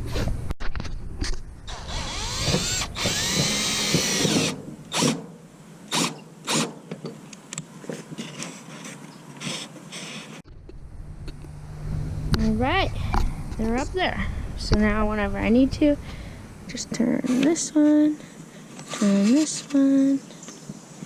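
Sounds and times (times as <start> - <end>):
power drill driving screws: 1.7 - 5.2, 5.9 - 6.7.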